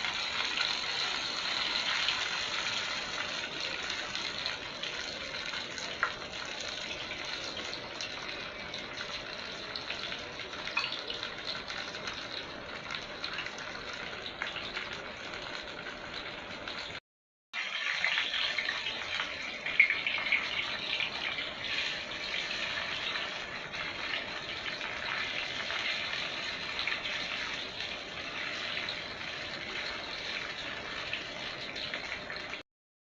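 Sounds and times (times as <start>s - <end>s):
oil popping and crackling: 0.0s - 17.0s, 17.6s - 32.6s
fish sizzling in hot oil: 0.0s - 32.6s.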